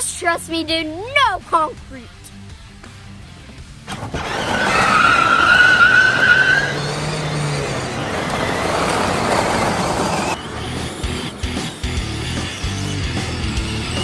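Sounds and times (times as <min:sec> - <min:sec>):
tyre squeal: 0:03.9 - 0:13.7
car tyres skidding: 0:03.9 - 0:14.0.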